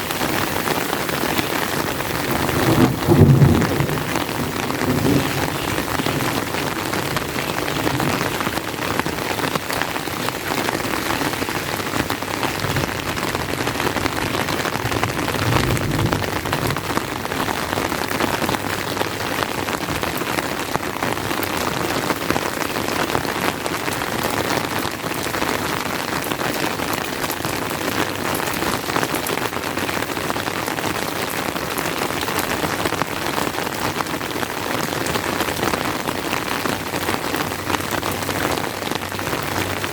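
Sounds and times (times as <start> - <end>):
steady rain patter: 0.0 - 39.9
low rumble of thunder: 0.6 - 9.7, 12.2 - 18.8.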